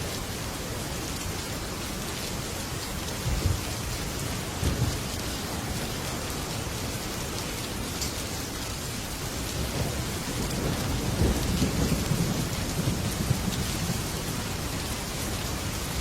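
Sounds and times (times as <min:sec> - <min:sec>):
heavy rain on a metal roof: 0:00.0 - 0:16.0
low rumble of thunder: 0:03.1 - 0:06.5, 0:09.4 - 0:16.0.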